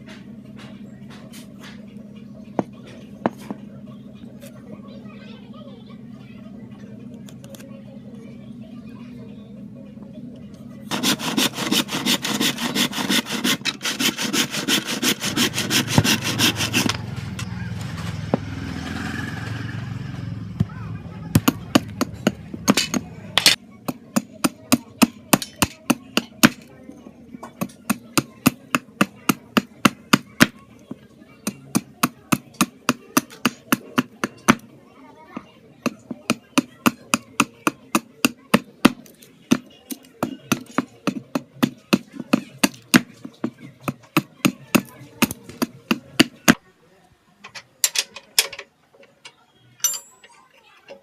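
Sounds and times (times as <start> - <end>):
hand tool striking wood: 10.9 - 17.4, 20.6 - 26.6, 31.4 - 34.6, 35.8 - 46.6.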